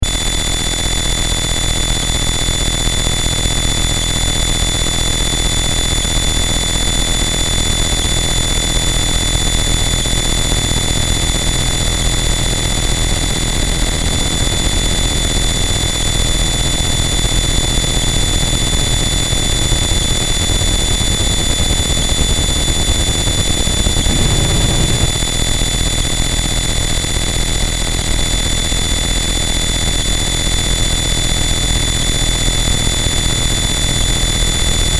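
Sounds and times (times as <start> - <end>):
high whining tones: 18.7 - 25.4
dense distorted noise: 21.8 - 25.3
low rumble: 23.5 - 25.2.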